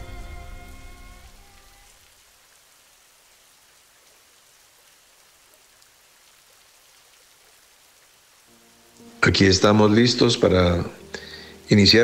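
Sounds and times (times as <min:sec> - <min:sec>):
faint rain: 0:00.0 - 0:12.0
raindrop ticks: 0:01.6 - 0:09.4.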